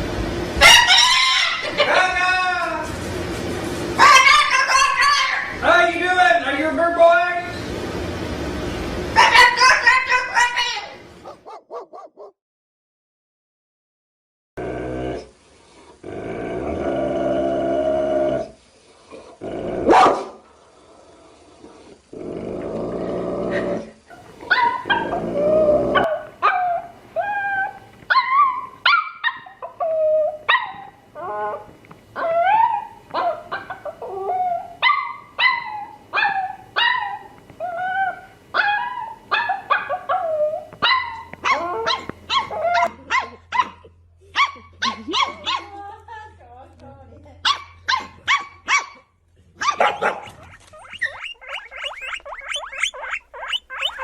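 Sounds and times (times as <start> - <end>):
dogs barking and growling: 0.6 - 3.2, 3.9 - 5.7, 11.1 - 12.4, 19.2 - 20.5, 21.5 - 45.8, 47.5 - 54.0
short high yips: 49.8 - 54.0.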